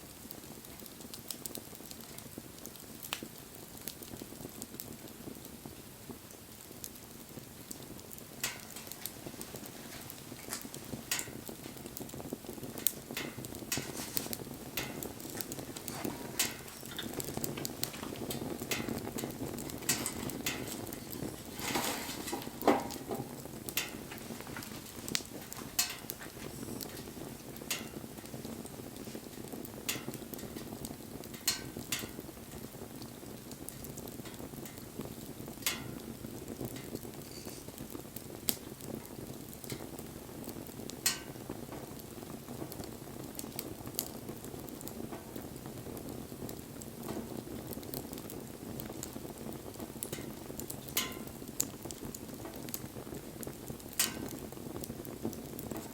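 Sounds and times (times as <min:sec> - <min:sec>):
campfire crackling and popping: 0:00.0 - 0:55.9
flame rushing: 0:00.0 - 0:55.9.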